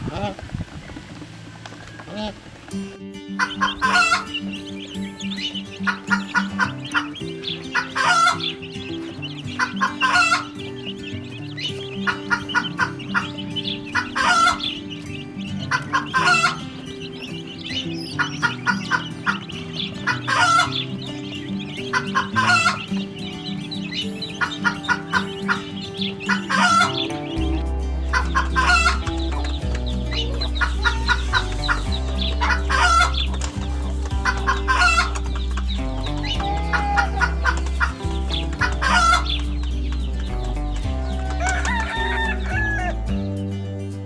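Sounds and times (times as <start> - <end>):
chickens clucking: 0.0 - 43.5
background music: 1.3 - 44.0
deep bass: 26.6 - 44.0.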